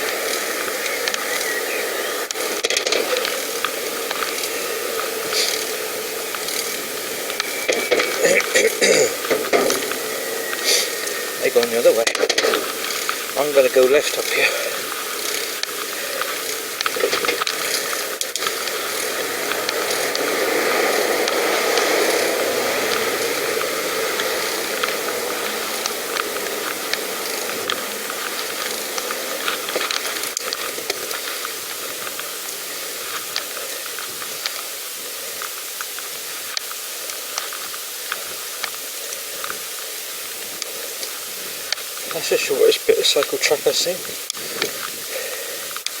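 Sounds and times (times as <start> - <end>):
freewheel ticking: 0.0 - 46.0
wind and tyre hiss: 0.0 - 46.0.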